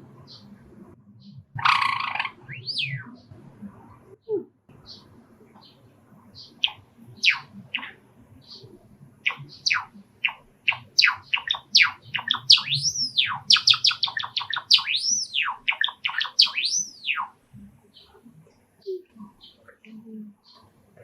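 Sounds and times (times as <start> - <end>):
sparrow singing: 1.2 - 3.3, 4.8 - 20.7.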